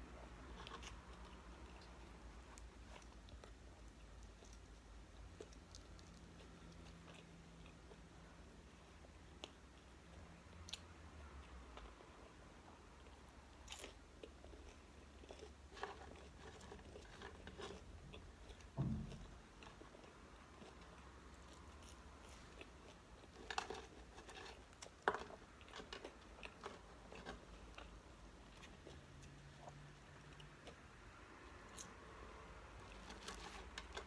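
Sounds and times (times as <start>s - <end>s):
person chewing and crunching food: 0.1s - 34.0s
dull thump: 18.8s - 19.3s.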